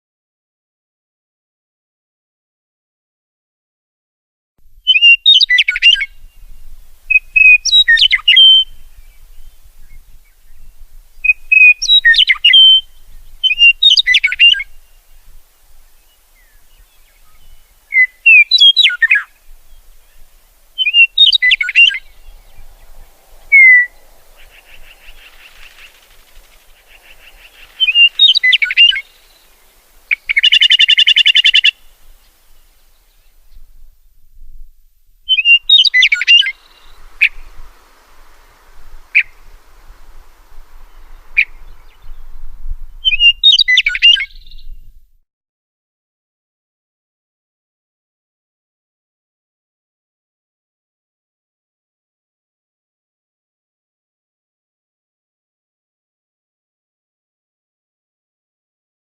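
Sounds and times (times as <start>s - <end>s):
songbird chirping phrases: 4.9s - 15.3s, 15.9s - 33.6s, 35.3s - 44.7s.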